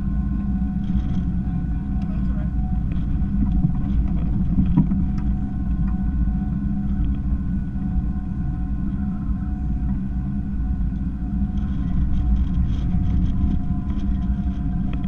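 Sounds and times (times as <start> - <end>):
boat engine rumbling: 0.0 - 15.0
faint steady tones: 0.0 - 15.0.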